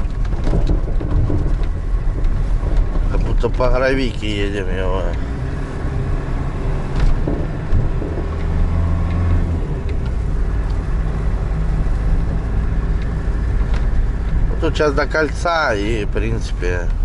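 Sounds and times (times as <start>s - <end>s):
van jolting knocks: 0.0s - 5.1s, 6.8s - 10.4s
van engine and road rumble: 0.0s - 17.0s.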